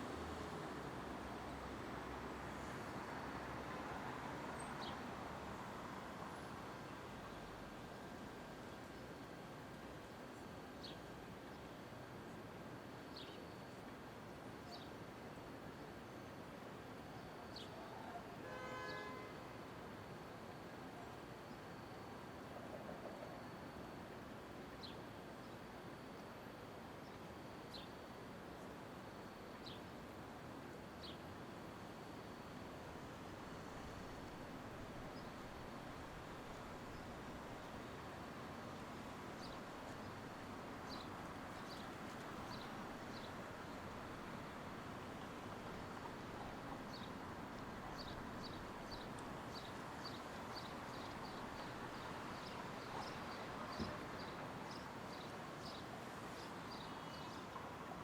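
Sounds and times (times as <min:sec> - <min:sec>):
distant traffic: 0:00.0 - 0:09.4, 0:31.3 - 0:58.0.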